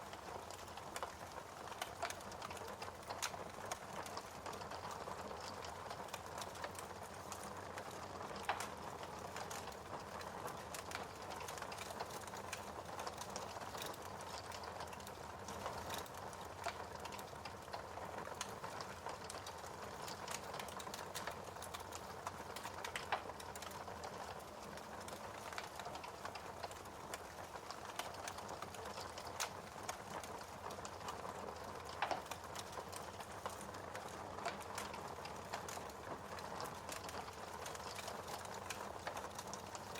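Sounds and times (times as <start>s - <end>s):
wood fire crackling: 0.0s - 39.9s
fire pops: 15.9s - 39.7s.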